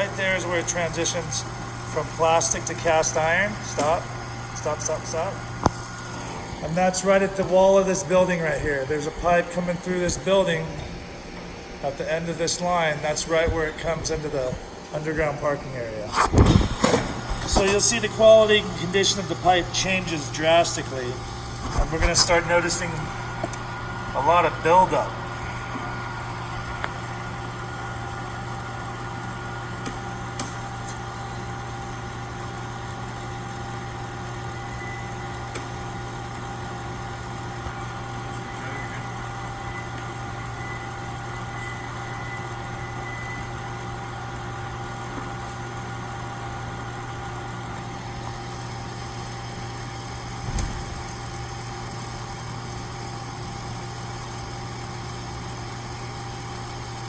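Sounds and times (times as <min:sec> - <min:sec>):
machine hum with low drone: 0:00.0 - 0:57.0
short low thump: 0:16.2 - 0:17.7.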